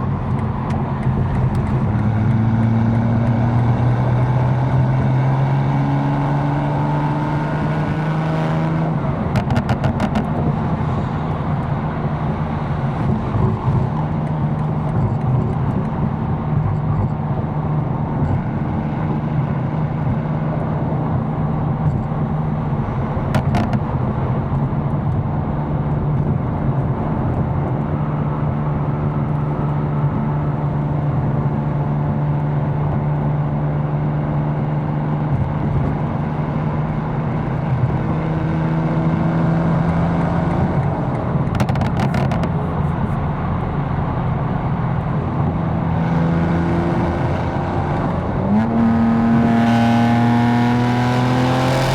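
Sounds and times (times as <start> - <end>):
car engine droning steadily: 0.0 - 51.9.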